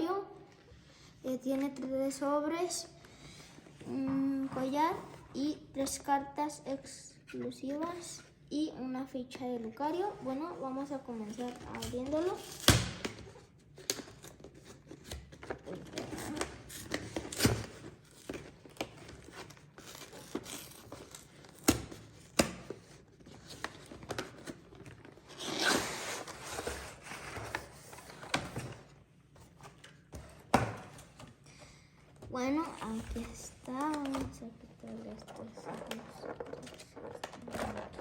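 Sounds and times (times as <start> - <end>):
packaging tearing and crinkling: 16.0 - 21.9.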